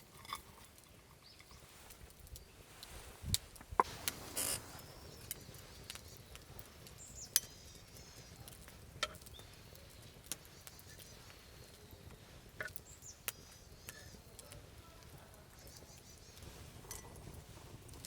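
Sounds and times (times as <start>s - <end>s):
campfire crackling and popping: 0.0s - 18.0s
faint bird chirps: 4.4s - 8.5s, 9.2s - 14.6s, 15.5s - 16.6s.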